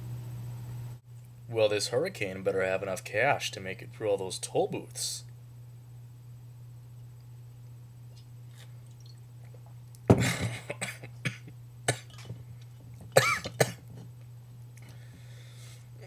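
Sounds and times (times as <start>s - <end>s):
steady low hum: 0.0s - 16.0s
man coughing and clearing throat: 10.1s - 12.2s, 13.2s - 13.9s.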